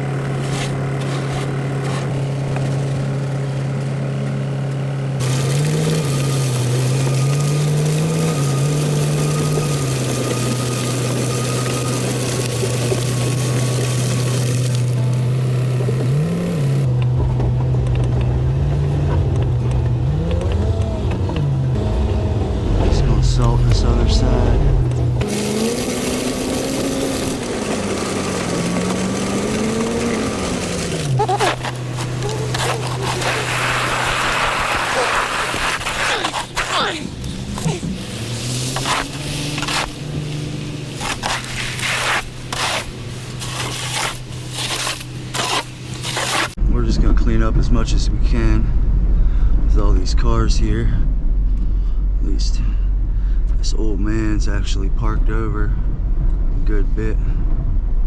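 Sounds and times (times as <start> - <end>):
truck engine revving: 0.0 - 46.6
plow blade scraping pavement: 0.0 - 47.1
low rumble: 16.8 - 25.3, 46.5 - 58.0.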